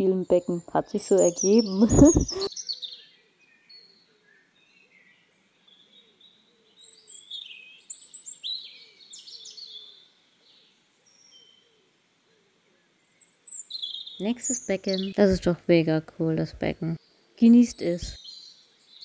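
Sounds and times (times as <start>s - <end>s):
high bird chirps and whistled calls: 0.0s - 5.8s, 6.8s - 11.6s, 13.1s - 15.4s, 16.8s - 19.0s.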